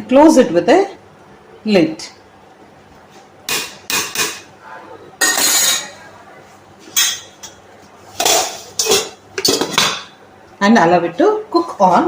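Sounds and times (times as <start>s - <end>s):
metal cookware clinking: 5.2s - 6.0s, 7.0s - 10.1s.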